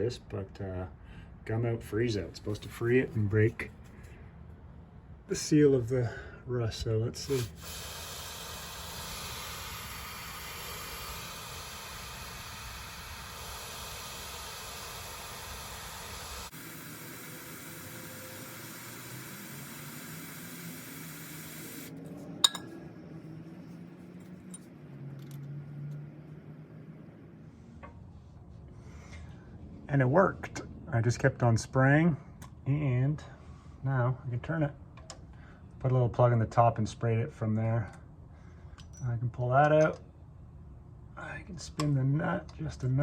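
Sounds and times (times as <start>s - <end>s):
aerosol can spraying: 7.3s - 22.0s.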